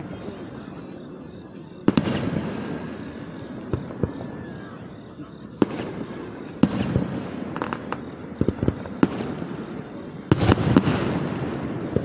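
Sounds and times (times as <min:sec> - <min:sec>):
fireworks bangs: 0:05.6 - 0:12.0.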